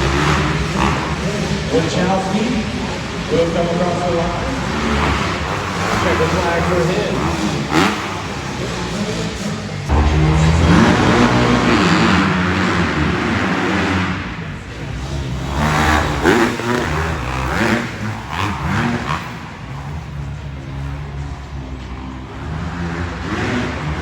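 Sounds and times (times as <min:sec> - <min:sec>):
dirt bike engines revving: 0:00.0 - 0:24.0.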